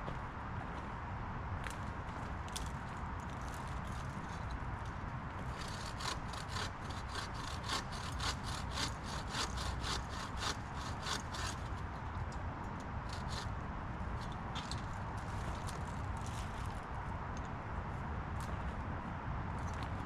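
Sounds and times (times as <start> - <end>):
hand saw cutting wood: 5.4 - 11.8, 13.1 - 13.5.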